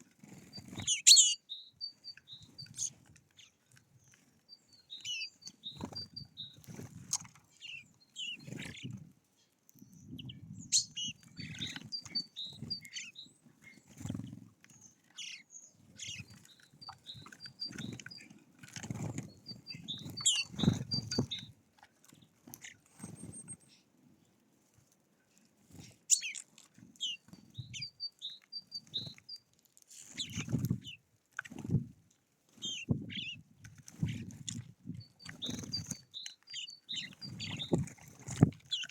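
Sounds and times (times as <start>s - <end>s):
small songbirds chirping: 0.0s - 24.3s, 25.2s - 31.9s, 32.5s - 38.9s.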